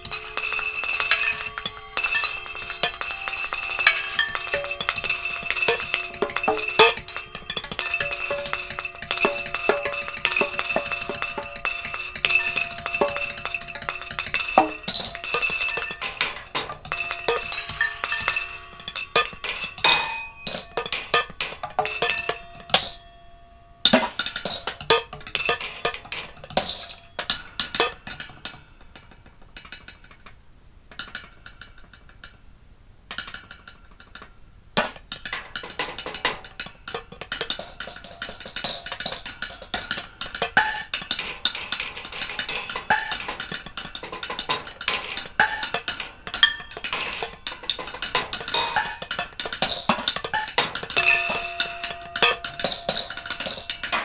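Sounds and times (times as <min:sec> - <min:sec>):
clattering on dishes and plates: 0:00.0 - 0:23.2, 0:23.9 - 0:32.4, 0:33.1 - 0:54.0.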